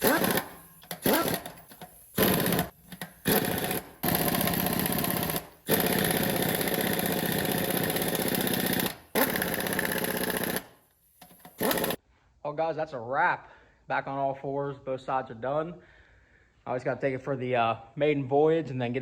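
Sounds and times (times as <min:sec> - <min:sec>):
power tool running: 0:00.0 - 0:12.0.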